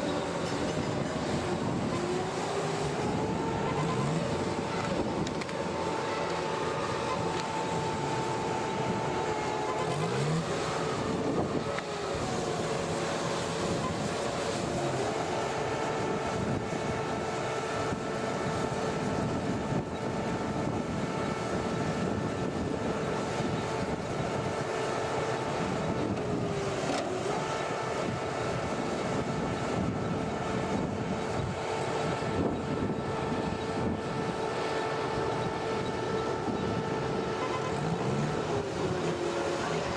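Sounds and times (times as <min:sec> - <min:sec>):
constant whine: 0:00.0 - 0:39.9
machine engine running: 0:00.0 - 0:39.9.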